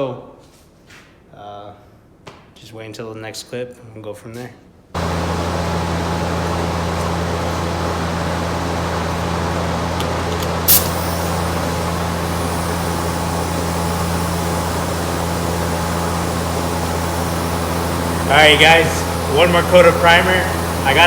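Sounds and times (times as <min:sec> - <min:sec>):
fan humming: 0:05.0 - 0:21.0
sharp hiss of air: 0:10.7 - 0:21.0.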